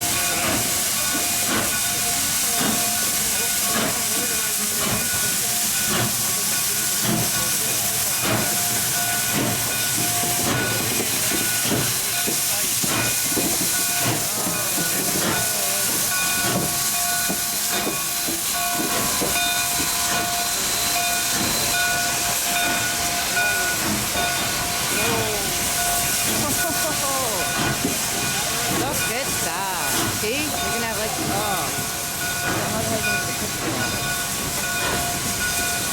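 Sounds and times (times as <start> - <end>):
steam locomotive hissing: 0.0 - 35.9
steady high tones: 22.6 - 33.3.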